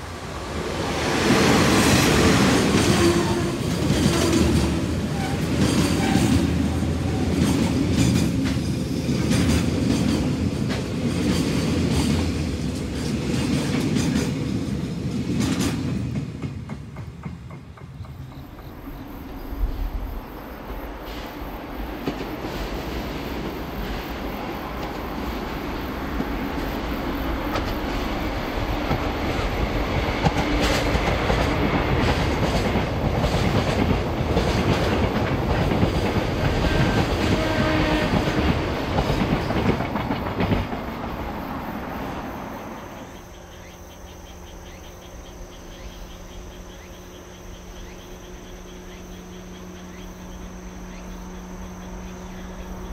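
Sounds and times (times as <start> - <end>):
diesel locomotive engine under load: 0.0 - 52.9
train wheels clicking over rail joints: 1.3 - 19.4, 21.1 - 42.1
insect chirring: 40.0 - 52.9.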